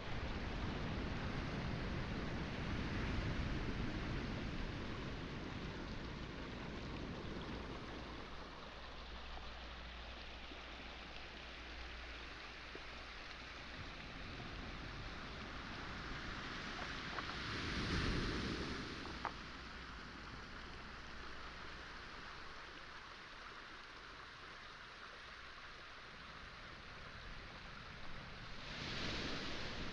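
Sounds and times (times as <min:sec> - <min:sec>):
waves washing onto pebble beach: 0:00.0 - 0:08.6, 0:11.9 - 0:21.8, 0:27.2 - 0:29.9.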